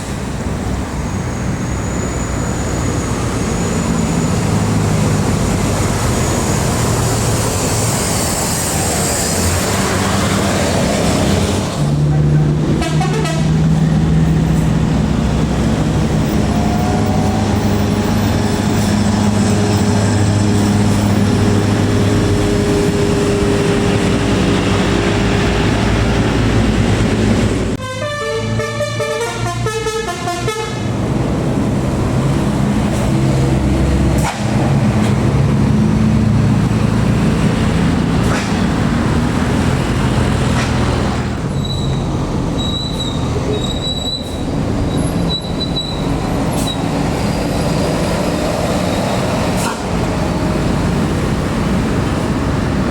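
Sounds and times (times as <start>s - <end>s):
heavy bus engines running: 0.0s - 52.9s
multi-tone horn melody: 12.8s - 13.6s, 27.8s - 30.8s.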